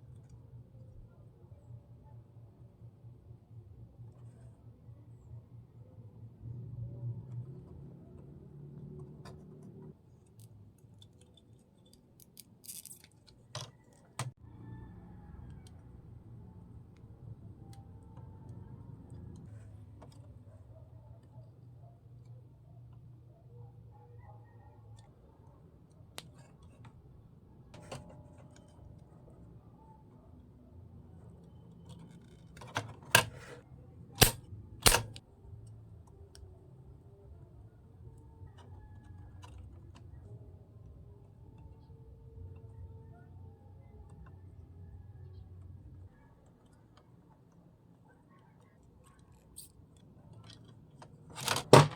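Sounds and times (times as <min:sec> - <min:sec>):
sharp click: 0:34.2 - 0:35.2.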